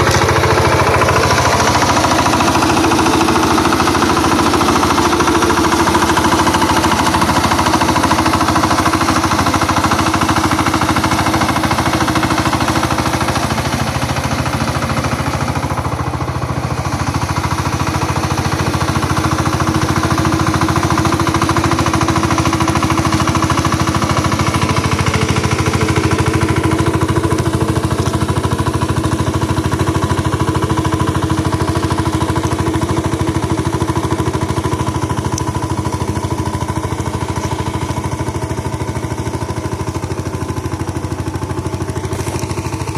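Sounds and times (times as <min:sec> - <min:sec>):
ploughing machine engine chugging: 0:00.0 - 0:42.9.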